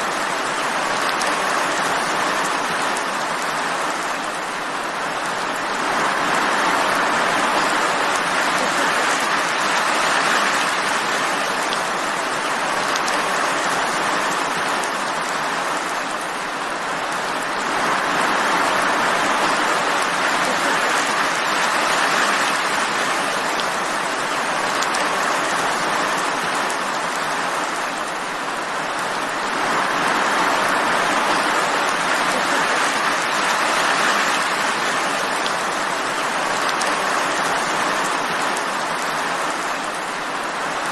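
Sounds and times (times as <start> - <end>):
steady rainfall hiss: 0.0 - 40.9.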